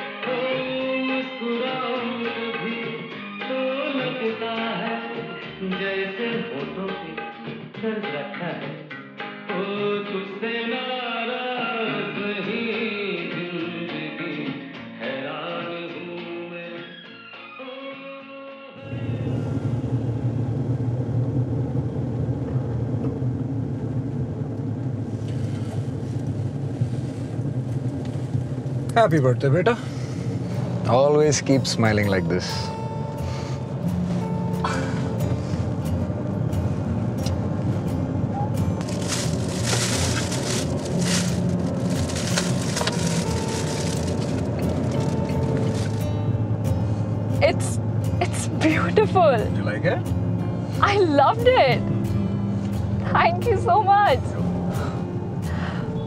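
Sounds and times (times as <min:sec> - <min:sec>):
music: 0:00.0 - 0:20.5, 0:25.2 - 0:56.0
car engine rumbling: 0:18.8 - 0:56.0
foil wrapping crinkling: 0:38.8 - 0:46.0.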